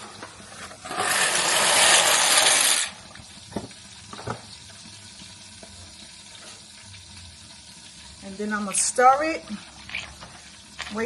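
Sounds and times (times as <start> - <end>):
cooking pot rushing hiss: 0.0 - 11.0.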